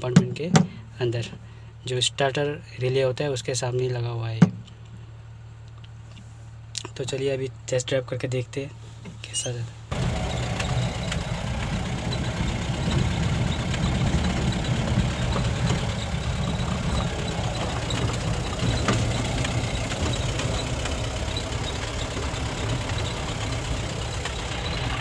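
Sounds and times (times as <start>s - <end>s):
diesel engine running: 9.7s - 25.0s.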